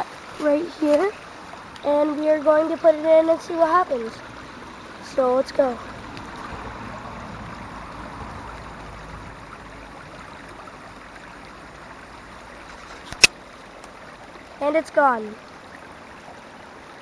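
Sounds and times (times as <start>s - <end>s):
stream trickling: 0.0s - 17.0s
sharp click: 13.1s - 13.4s.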